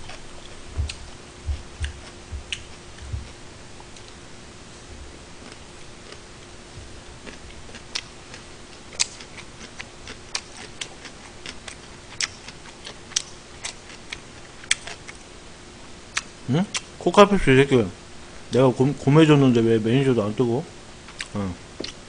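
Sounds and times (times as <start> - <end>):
person chewing with clicks and smacks: 0.0 - 4.2, 5.4 - 6.2, 7.2 - 15.3, 16.1 - 16.9, 21.1 - 22.0.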